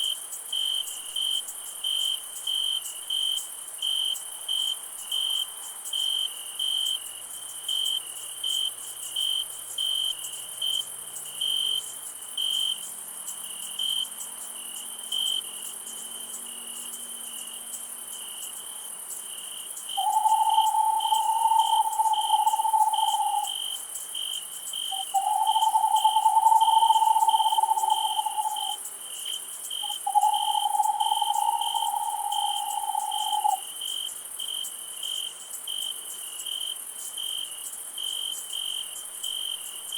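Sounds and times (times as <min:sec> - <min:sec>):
crickets chirping: 0:00.0 - 0:39.9
high insect hiss: 0:00.0 - 0:39.9
long low calls: 0:20.0 - 0:23.6, 0:24.9 - 0:28.8, 0:29.8 - 0:33.6.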